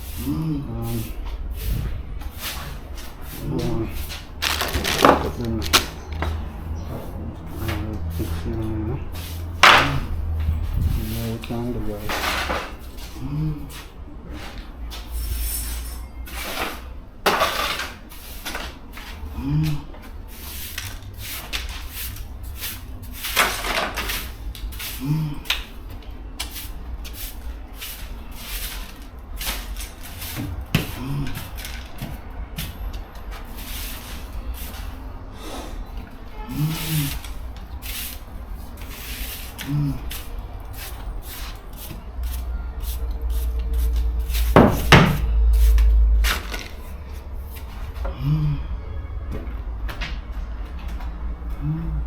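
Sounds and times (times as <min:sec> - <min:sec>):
objects knocking and rustling: 0:01.6 - 0:08.4, 0:09.3 - 0:11.1, 0:12.0 - 0:13.2, 0:16.3 - 0:22.3, 0:23.0 - 0:27.2, 0:27.9 - 0:35.0, 0:43.9 - 0:48.2.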